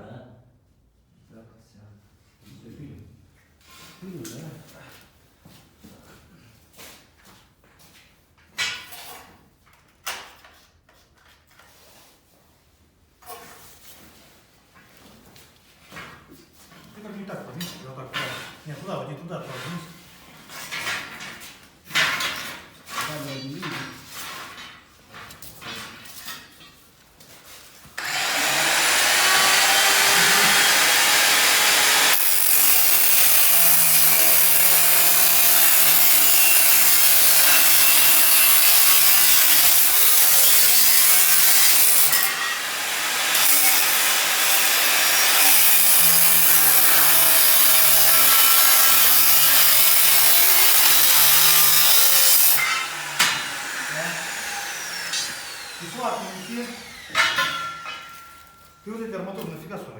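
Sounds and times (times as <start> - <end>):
angle grinder cutting steel: 28.0 - 58.6.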